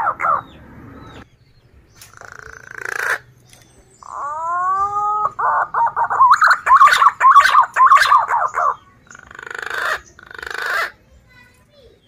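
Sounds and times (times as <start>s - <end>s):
pigeon whistled warbling call: 4.0s - 8.8s
raspy rattle call: 6.2s - 11.0s.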